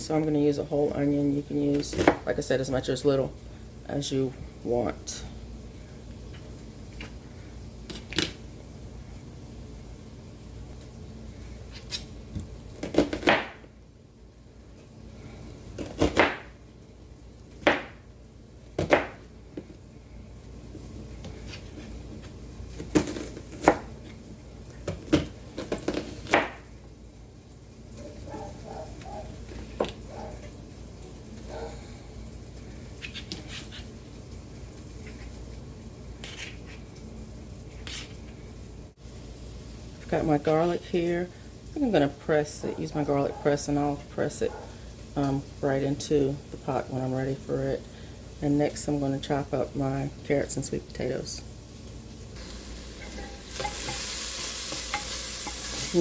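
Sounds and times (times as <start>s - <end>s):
kitchen utensil scraping: 52.9s - 56.0s.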